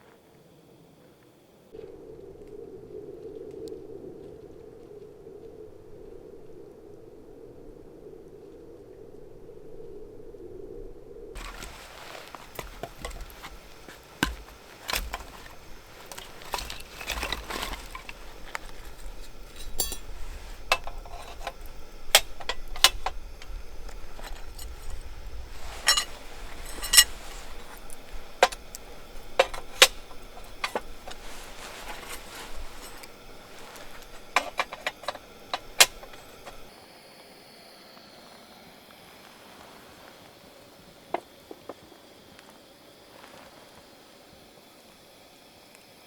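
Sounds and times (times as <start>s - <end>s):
cookware clinking: 11.4s - 36.7s.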